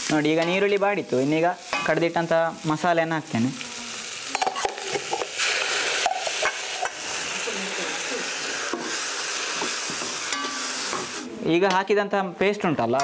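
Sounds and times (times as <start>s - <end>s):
paste sizzling in hot oil: 0.0s - 11.4s
steel ladle clinking on pan: 10.3s - 10.6s.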